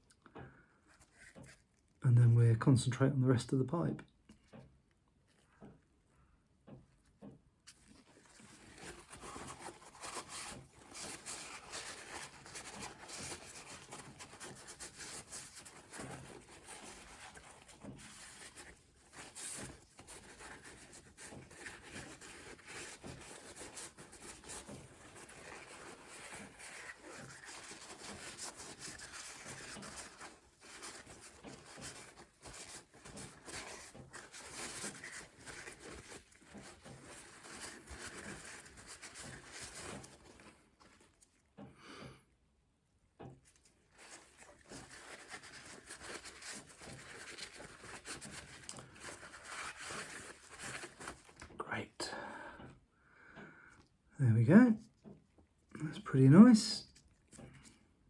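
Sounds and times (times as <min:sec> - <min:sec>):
scratchy rubbing on a pipe: 0:07.7 - 0:41.3, 0:43.5 - 0:51.6.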